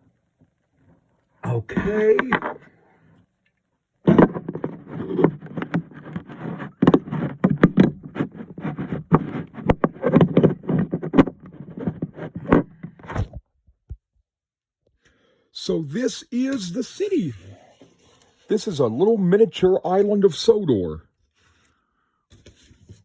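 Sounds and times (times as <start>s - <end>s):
plastic toy handling noise: 16.4s - 19.1s.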